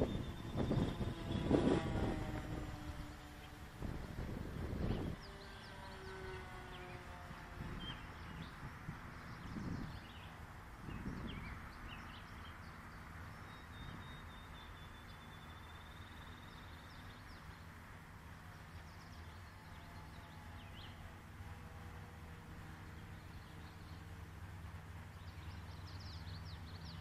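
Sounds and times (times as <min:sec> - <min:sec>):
wind buffeting microphone: 0:00.0 - 0:12.4
steady outdoor hiss: 0:00.0 - 0:27.0
small birds chirping: 0:04.8 - 0:07.1, 0:07.7 - 0:17.8, 0:18.6 - 0:21.1, 0:22.8 - 0:27.0.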